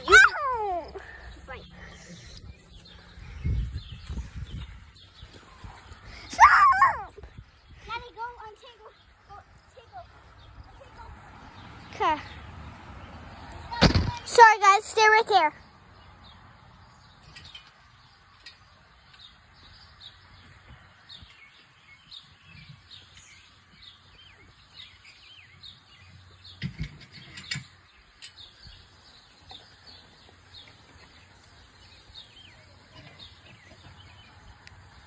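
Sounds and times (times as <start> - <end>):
birds chirping: 0.0 - 35.0
faint outdoor background noise: 0.0 - 35.0
dull low thumps: 2.5 - 4.9.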